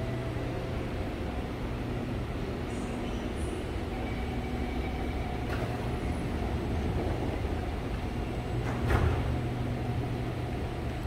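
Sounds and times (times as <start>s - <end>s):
train equipment humming: 0.0s - 11.0s
train doors thumping shut: 5.2s - 10.0s.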